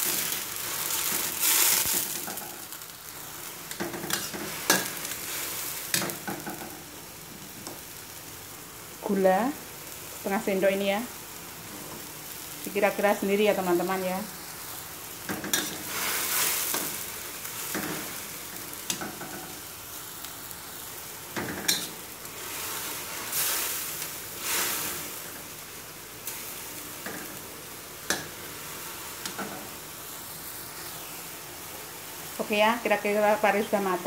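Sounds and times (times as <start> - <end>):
vegetables sizzling in a wok: 0.0 - 34.0
metal spatula scraping a wok: 3.7 - 5.1, 15.4 - 17.0.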